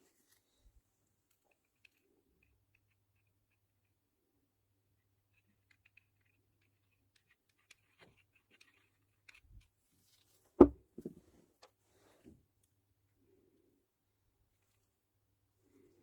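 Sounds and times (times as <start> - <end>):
small parts clicking and tapping: 1.3 - 4.0, 5.0 - 9.8
soft clunks: 10.6 - 11.3.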